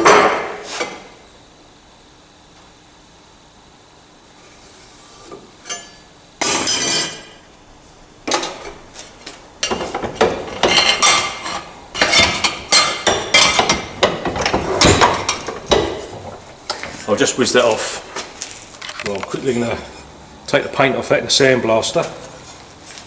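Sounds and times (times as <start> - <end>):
metal tools clattering and clinking: 9.6 - 16.4.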